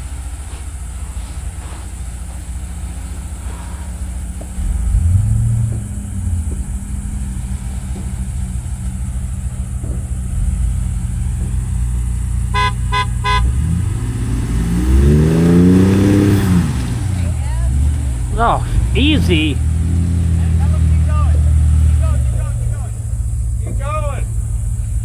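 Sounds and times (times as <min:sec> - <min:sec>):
car engine running: 0:00.0 - 0:25.0
car horn toots: 0:12.4 - 0:14.0, 0:18.4 - 0:24.4.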